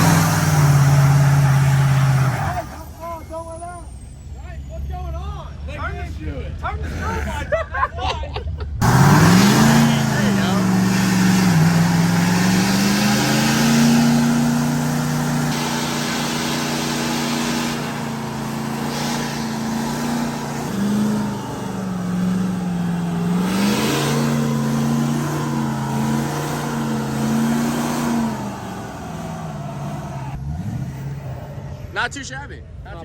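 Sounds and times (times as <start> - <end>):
truck engine revving: 0.0 - 4.7, 8.8 - 32.9
tyres spinning: 8.8 - 30.7.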